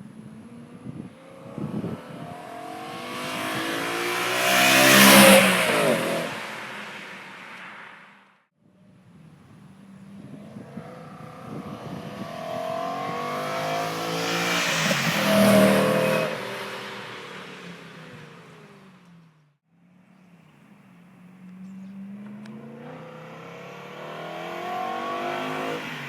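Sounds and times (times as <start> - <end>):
car driving past: 1.3 - 8.3, 10.5 - 19.4.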